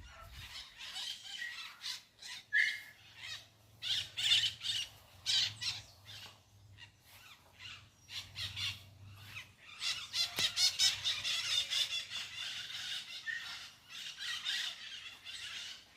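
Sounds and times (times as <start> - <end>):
birds squawking: 0.0 - 15.9.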